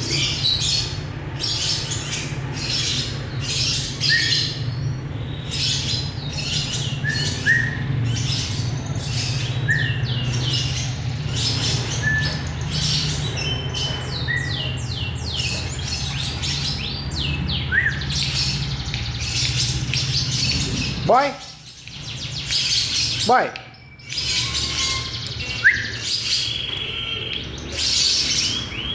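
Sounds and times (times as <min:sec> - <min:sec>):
bird chattering and squeaking: 0:05.5 - 0:26.7.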